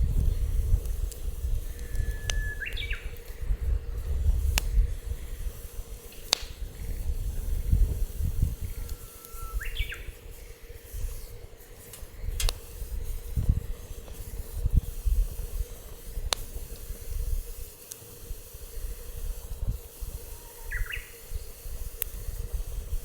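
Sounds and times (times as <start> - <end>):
wood fire crackling: 0.0 - 23.0
short rising whistles: 1.7 - 3.2, 8.6 - 10.5.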